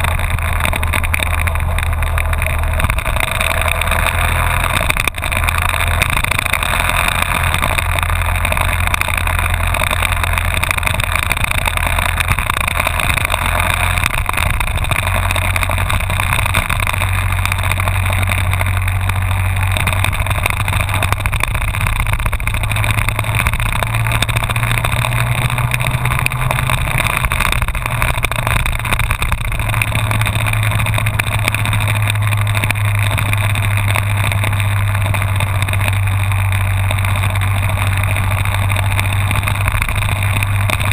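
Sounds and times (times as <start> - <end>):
motorcycle engine running: 0.0 - 40.9
road noise: 0.0 - 40.9.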